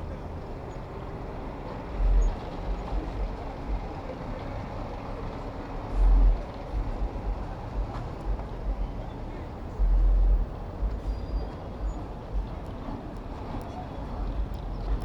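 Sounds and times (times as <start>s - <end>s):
road traffic: 0.0s - 15.0s
low rumbles: 9.8s - 15.0s.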